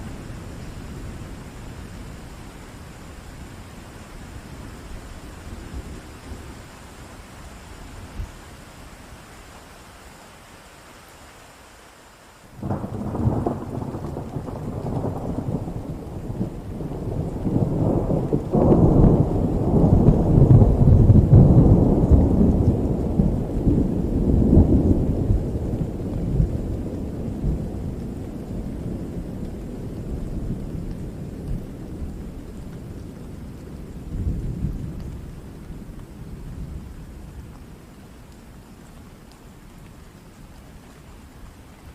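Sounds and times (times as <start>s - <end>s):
steady rain: 0.0s - 41.9s
thunder rolling: 12.6s - 32.4s.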